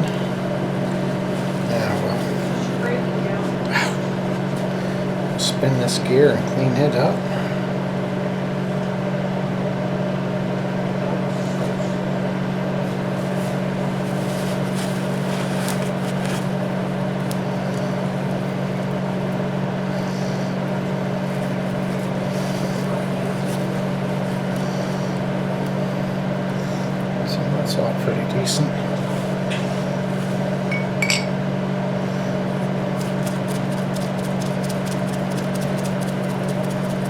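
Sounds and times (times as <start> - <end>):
machine electric hum: 0.0 - 37.0.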